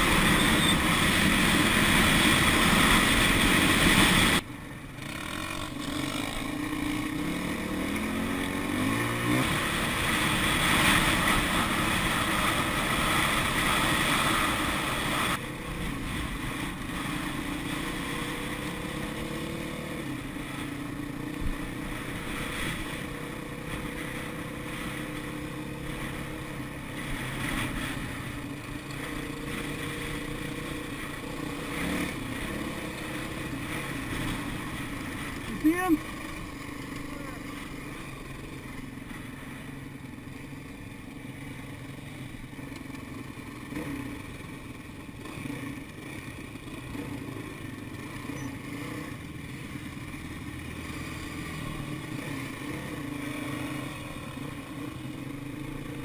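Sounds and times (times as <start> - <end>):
dirt bike engine revving: 0.0 - 4.4, 5.0 - 39.7.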